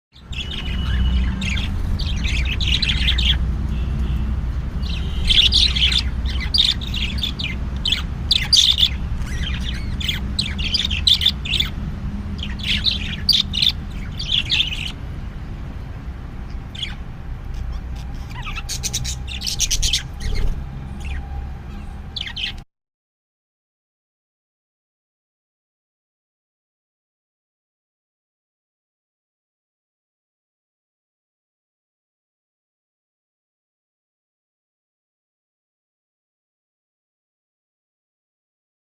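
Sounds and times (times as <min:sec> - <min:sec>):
baby sparrow chirping: 0:00.2 - 0:22.6.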